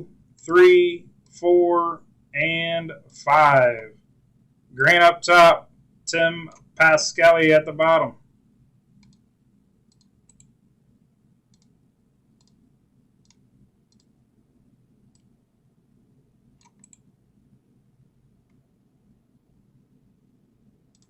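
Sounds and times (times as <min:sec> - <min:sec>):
computer mouse clicking: 0:09.0 - 0:09.3, 0:09.9 - 0:10.6, 0:11.5 - 0:11.8, 0:12.4 - 0:14.2, 0:15.1 - 0:15.4, 0:16.6 - 0:17.1.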